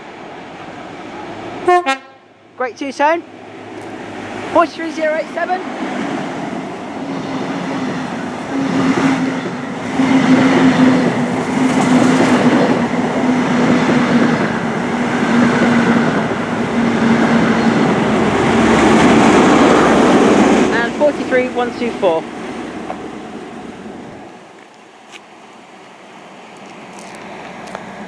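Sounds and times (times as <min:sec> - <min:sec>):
diesel train engine: 0:00.0 - 0:28.0
wheels clattering on rails: 0:08.8 - 0:24.8.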